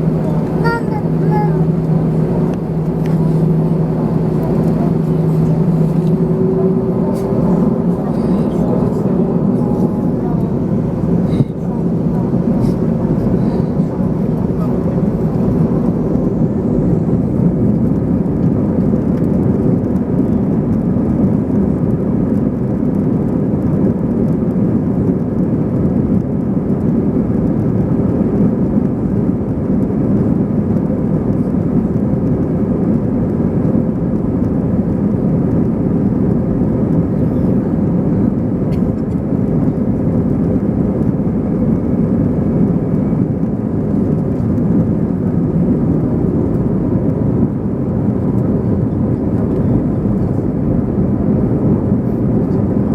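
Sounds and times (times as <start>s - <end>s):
faint steady hum: 0.0s - 19.6s
aircraft cabin engine noise: 0.0s - 52.9s.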